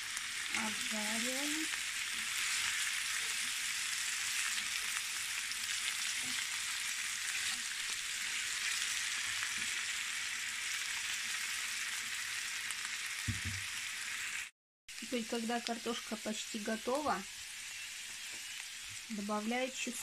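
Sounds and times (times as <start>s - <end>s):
spatula turning food: 0.0s - 12.6s
potatoes sizzling in a pan: 0.0s - 20.0s.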